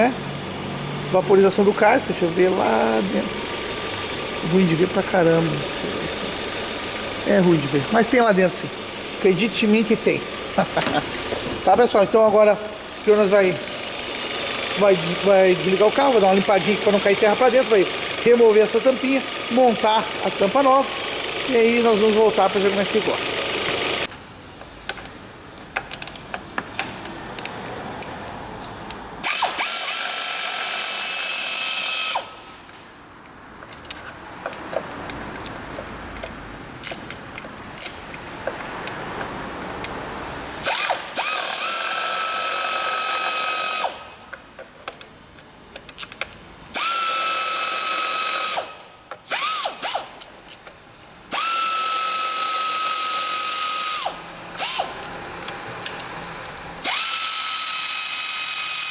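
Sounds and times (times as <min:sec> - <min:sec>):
electric drill whining: 0:00.0 - 0:24.1, 0:29.2 - 0:32.5, 0:40.6 - 0:44.1, 0:46.7 - 0:50.1, 0:51.3 - 0:55.1, 0:56.8 - 0:58.9
clicks of tools and parts: 0:23.0 - 0:58.9.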